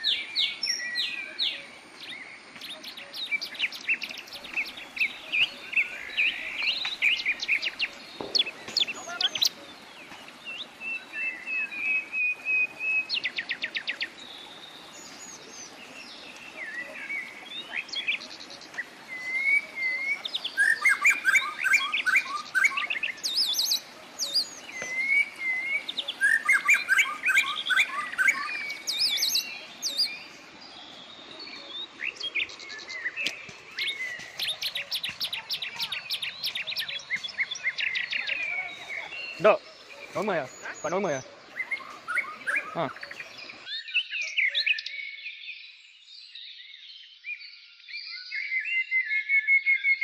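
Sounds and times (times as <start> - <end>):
high sharp bird chirps: 19.1 - 30.3.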